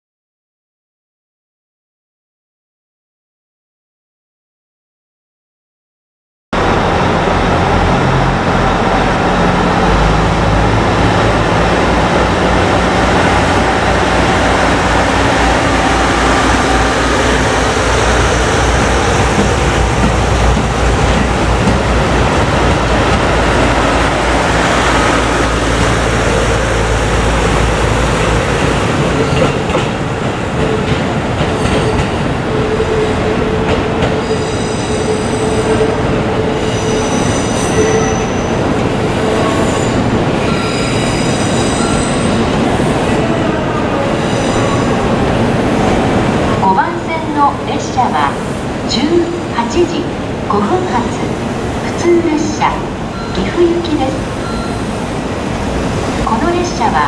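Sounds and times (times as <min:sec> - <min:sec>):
train wheels rumbling and clattering: 0:06.6 - 0:57.0
wheel squeal: 0:39.5 - 0:43.0.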